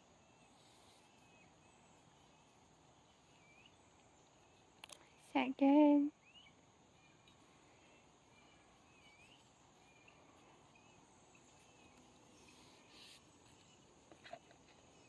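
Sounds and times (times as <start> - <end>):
faint insect drone: 0.0 - 15.0
soft rustling: 7.1 - 15.0.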